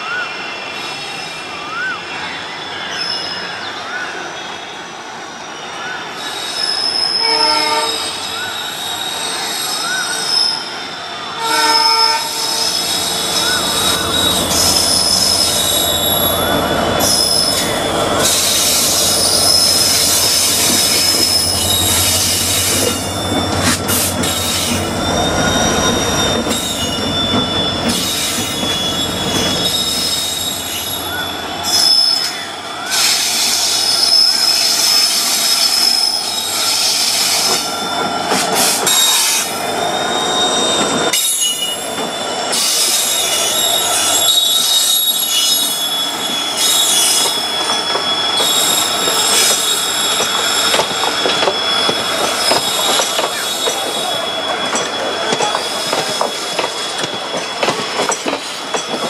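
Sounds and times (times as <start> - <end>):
wheels squealing on rails: 0.0 - 59.0
train horn blast: 7.2 - 8.2, 11.4 - 14.6
train rumble: 11.0 - 59.0.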